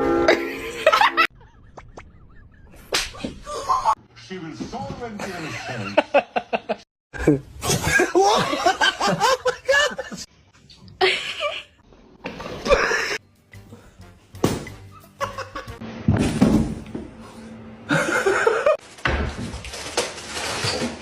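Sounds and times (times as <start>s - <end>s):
people laughing: 0.3s - 4.0s, 5.2s - 6.8s, 7.6s - 10.3s, 14.9s - 15.8s, 17.9s - 18.8s
music: 12.7s - 18.0s.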